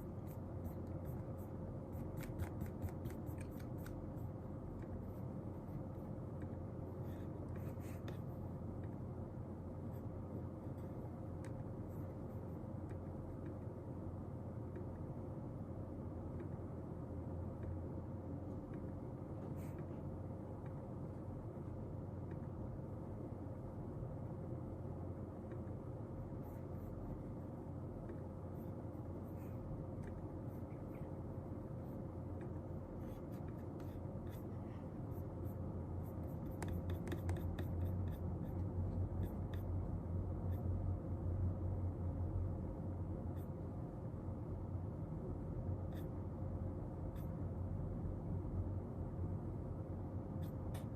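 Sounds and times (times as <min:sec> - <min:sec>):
pen writing on paper: 0:00.0 - 0:04.0, 0:33.0 - 0:38.6
low room hum: 0:00.0 - 0:50.9.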